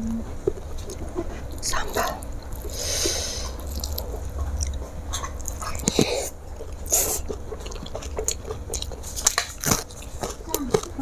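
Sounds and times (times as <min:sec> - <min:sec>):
steady low hum: 0:00.0 - 0:11.0
food being chewed: 0:00.3 - 0:11.0
wet mouth smacks: 0:03.4 - 0:09.9.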